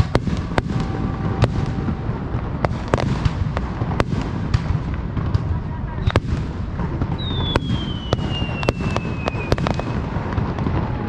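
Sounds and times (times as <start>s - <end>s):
low rumble: 0.0s - 7.2s
fireworks cracking: 0.0s - 11.0s
falling firework whistle: 7.1s - 11.0s.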